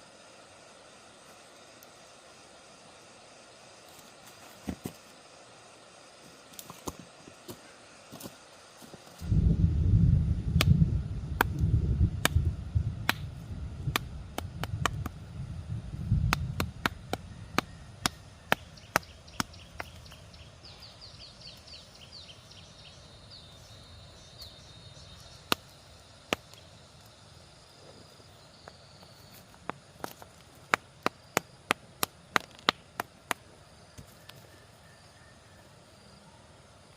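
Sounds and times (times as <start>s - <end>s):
low rumble: 9.2s - 18.0s.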